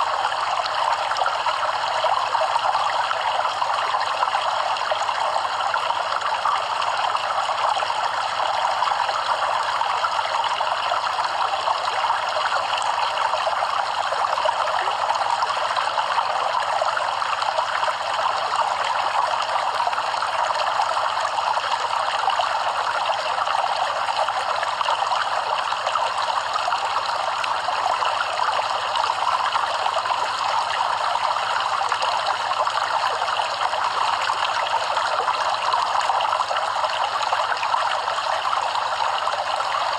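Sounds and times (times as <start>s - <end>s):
stream water flowing over stones: 0.0s - 39.9s.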